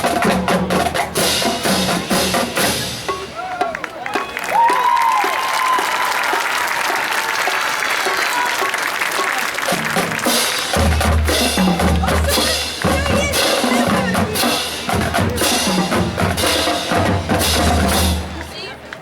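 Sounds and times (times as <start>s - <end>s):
drumline with bass drums: 0.0s - 19.0s
applause: 3.5s - 13.9s.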